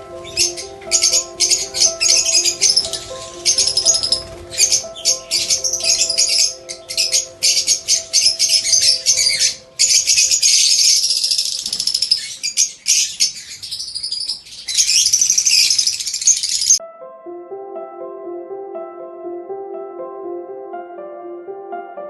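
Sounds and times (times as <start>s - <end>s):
soft background music: 0.0s - 11.4s, 16.8s - 22.0s
parakeets chattering: 0.0s - 16.8s.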